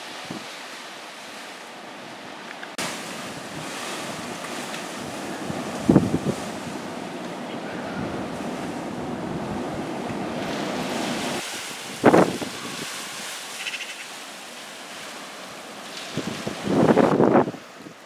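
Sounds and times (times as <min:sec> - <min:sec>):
storm wind buffeting microphone: 0:03.1 - 0:13.2, 0:16.1 - 0:18.0.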